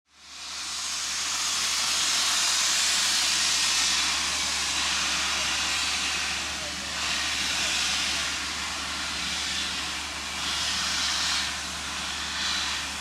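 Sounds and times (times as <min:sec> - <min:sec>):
steam hissing from locomotive: 0:00.1 - 0:13.0.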